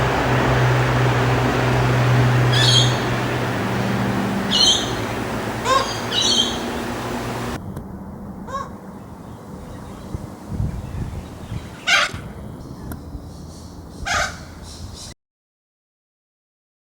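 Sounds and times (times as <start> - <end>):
bird screeching calls: 2.0 - 7.6.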